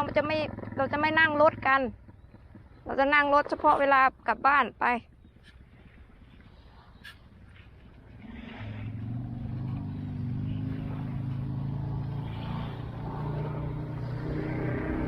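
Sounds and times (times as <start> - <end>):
motor engine drone: 0.0 - 15.0.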